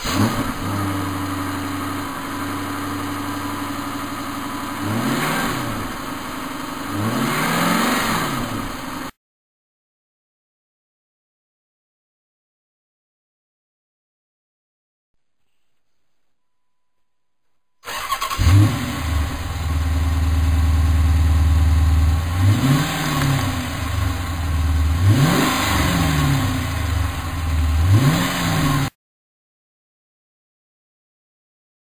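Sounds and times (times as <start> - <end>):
car engine starting and idling: 0.0 - 9.1, 17.8 - 28.9
engine revving: 0.0 - 9.2, 17.8 - 29.0.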